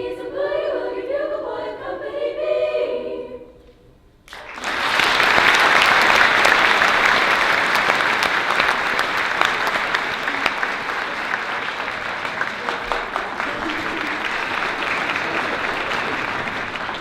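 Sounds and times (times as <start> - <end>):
audience applauding and cheering: 4.3 - 17.0.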